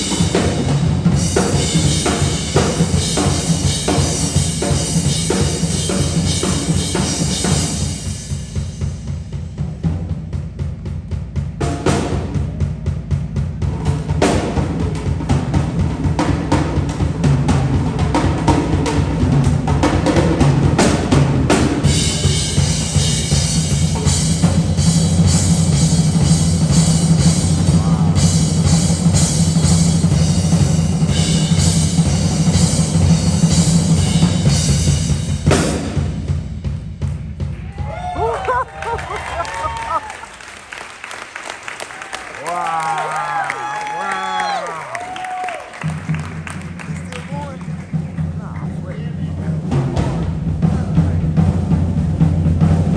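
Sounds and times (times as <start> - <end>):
cymbals: 0.0 - 10.4, 11.7 - 37.9
drum kit playing: 0.0 - 52.9
bass line: 22.0 - 34.5.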